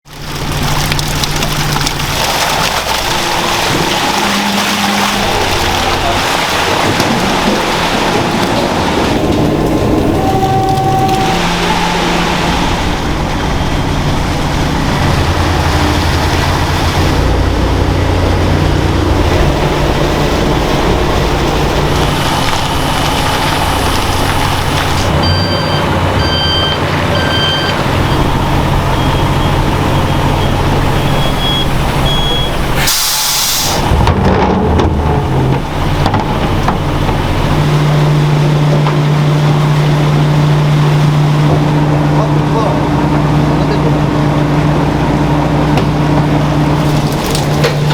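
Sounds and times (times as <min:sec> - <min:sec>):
heavy vehicle engine running: 0:00.0 - 0:47.9
air hiss: 0:32.8 - 0:33.8.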